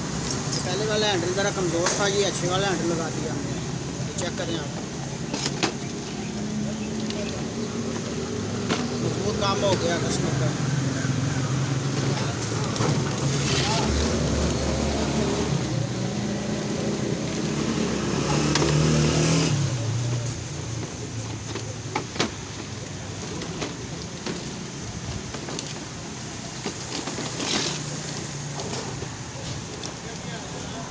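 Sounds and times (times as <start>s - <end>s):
engine humming: 0.0s - 30.9s
light clicks and knocks: 20.1s - 30.3s.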